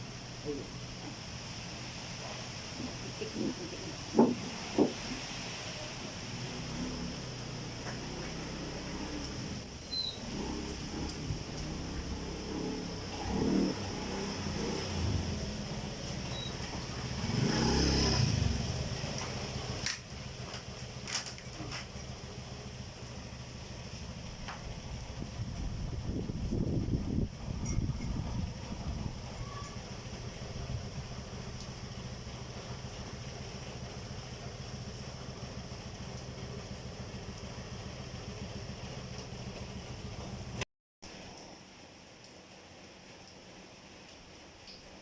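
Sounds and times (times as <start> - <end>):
vehicle engine passing: 4.7 - 20.4
engine idling: 18.2 - 40.6.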